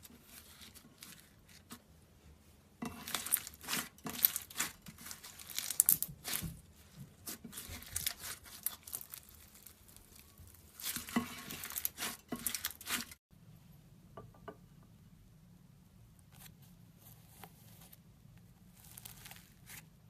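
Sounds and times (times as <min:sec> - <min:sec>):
crunchy slime crackling: 0:03.0 - 0:13.2, 0:18.7 - 0:19.9.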